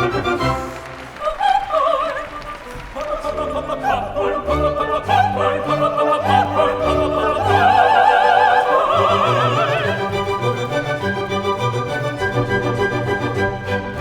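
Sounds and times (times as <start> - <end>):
orchestra playing: 0.0 - 14.0
operatic voice singing: 1.2 - 11.2.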